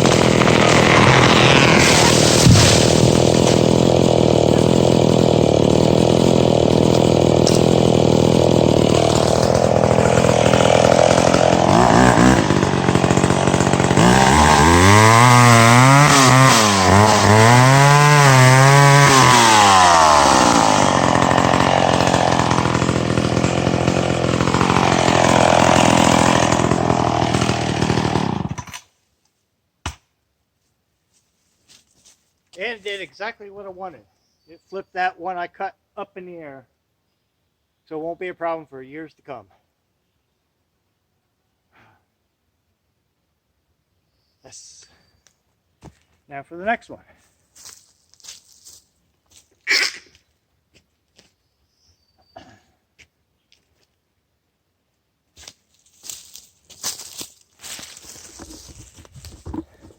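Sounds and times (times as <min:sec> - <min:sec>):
chainsaw cutting wood: 0:00.0 - 0:28.9, 0:55.4 - 0:59.9.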